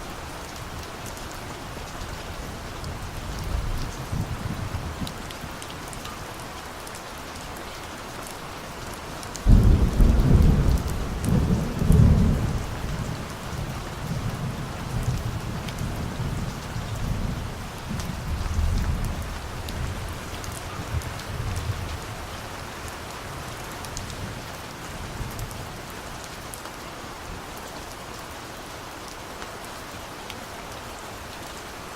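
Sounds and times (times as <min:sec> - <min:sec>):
steady rain: 0:00.0 - 0:31.9
thunderclap and rumble: 0:09.4 - 0:22.2.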